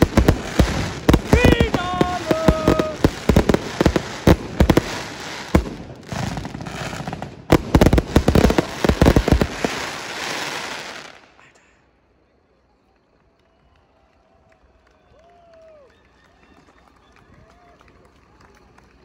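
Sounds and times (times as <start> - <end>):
fireworks crackling: 0.0 - 11.4.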